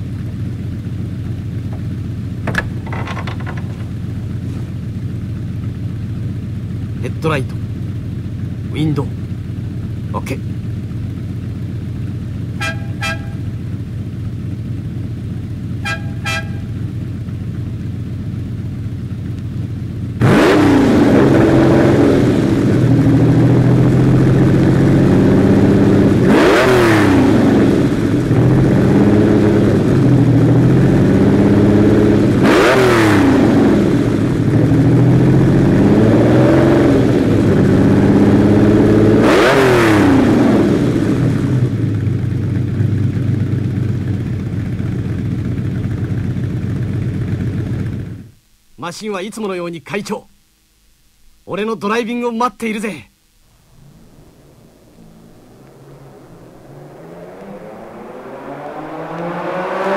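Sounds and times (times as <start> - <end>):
car engine idling: 0.0 - 26.6, 27.2 - 32.5, 40.3 - 48.7, 53.1 - 59.6
car accelerating hard: 20.2 - 41.8, 53.5 - 59.9.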